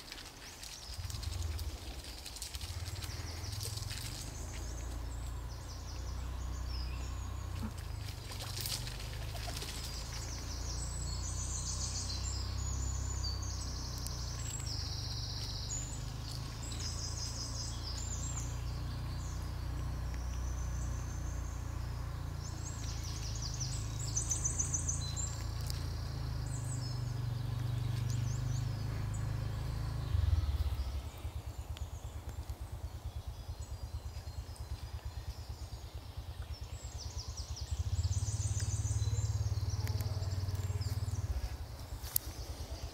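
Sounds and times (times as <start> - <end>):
faint rapid flutter: 0.0 - 19.4, 22.0 - 42.9
small birds singing: 0.0 - 42.9
steady low rumble: 0.0 - 42.9.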